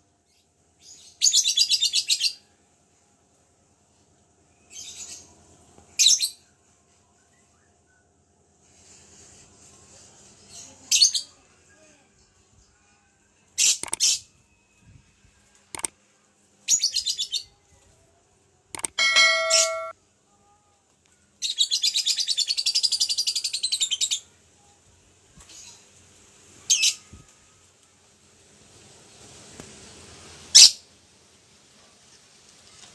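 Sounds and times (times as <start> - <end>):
steady ringing tone: 18.8 - 19.9.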